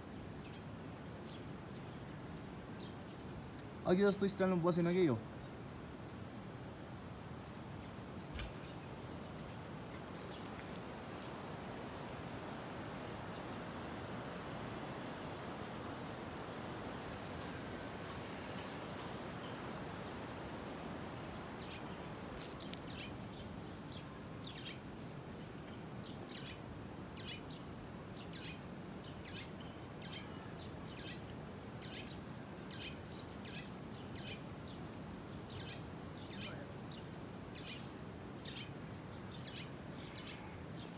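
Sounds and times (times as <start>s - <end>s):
outdoor background hiss: 0.0s - 40.9s
small birds chirping: 7.4s - 11.4s, 17.4s - 20.4s, 21.2s - 40.9s.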